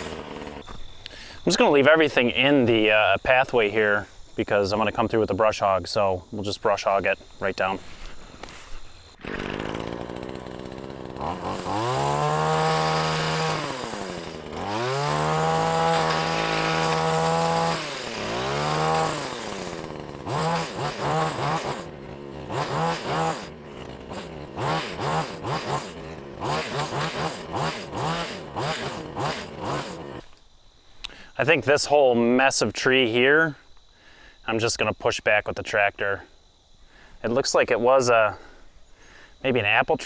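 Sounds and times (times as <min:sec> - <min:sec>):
hedge trimmer engine revving: 0:00.0 - 0:00.7, 0:09.2 - 0:30.3.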